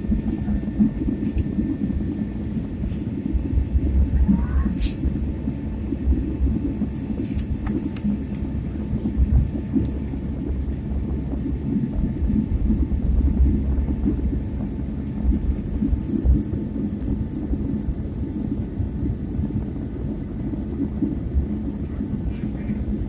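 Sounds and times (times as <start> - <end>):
airliner cabin noise: 0.0 - 23.0.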